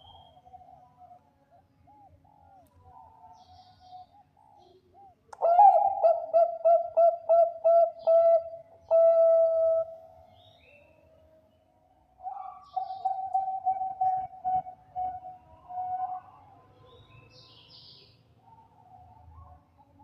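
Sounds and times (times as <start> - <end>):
dove cooing: 0.0 - 10.2, 12.2 - 16.6.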